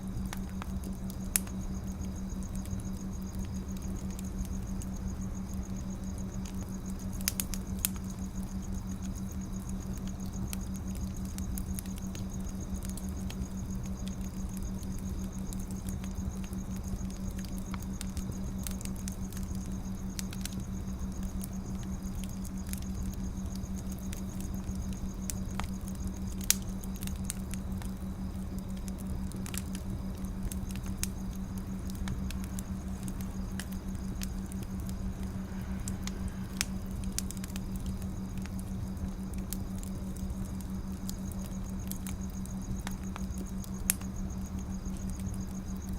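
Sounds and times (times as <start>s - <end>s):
firewood crackling and popping: 0.0s - 45.9s
steady low hum: 0.0s - 45.9s.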